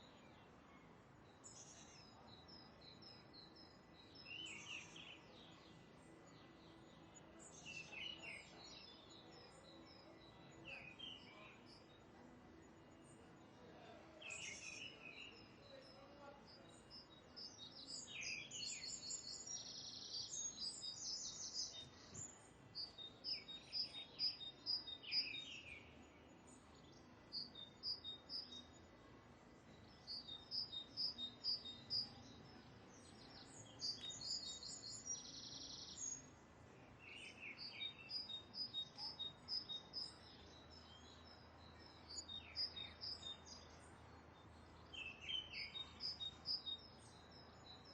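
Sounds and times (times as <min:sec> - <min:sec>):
birds chirping: 0:29.7 - 0:36.3.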